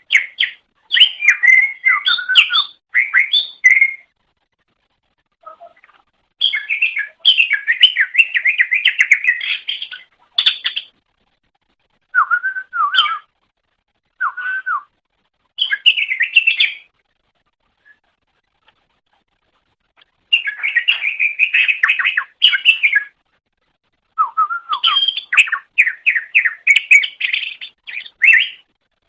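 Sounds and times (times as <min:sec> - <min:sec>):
bird warbling: 0:05.4 - 0:10.9, 0:15.6 - 0:16.9, 0:20.3 - 0:23.1, 0:24.2 - 0:28.6.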